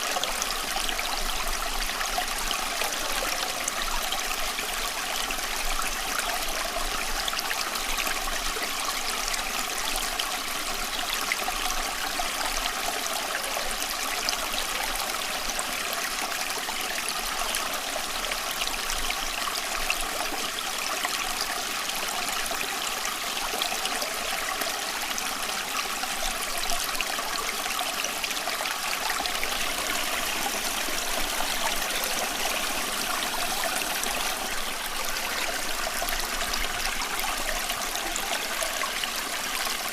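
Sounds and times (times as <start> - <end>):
stream water trickling: 0.0 - 39.9.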